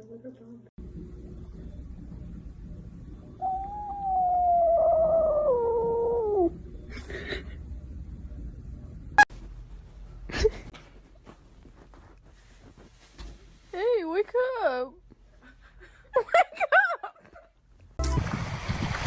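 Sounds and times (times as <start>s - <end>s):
pet animal wailing call: 3.4s - 6.5s.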